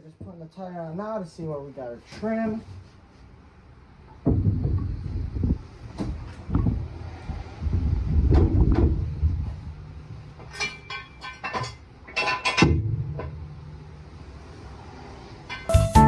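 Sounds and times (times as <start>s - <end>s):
sharp clattering knocks: 4.2s - 5.0s
tire thumping and bumping: 4.2s - 9.8s, 12.4s - 13.7s.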